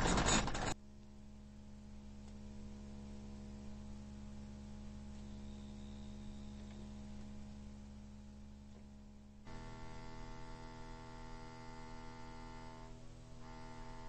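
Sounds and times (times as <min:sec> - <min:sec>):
low electrical hum: 0:00.0 - 0:14.0
faint high whistle: 0:05.1 - 0:07.2.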